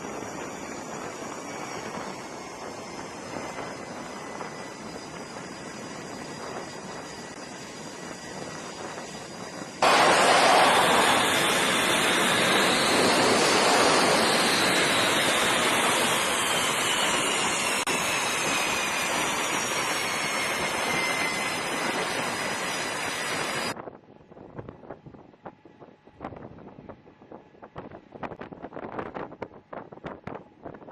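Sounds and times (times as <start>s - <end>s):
jet plane passing with whine: 0.0s - 23.8s
steady aircraft engine rush: 0.0s - 30.9s.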